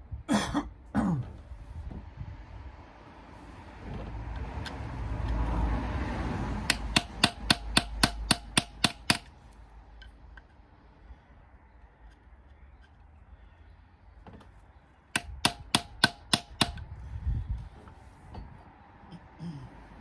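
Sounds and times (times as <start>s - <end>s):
hammer tapping on metal: 6.6s - 9.3s, 15.2s - 16.9s.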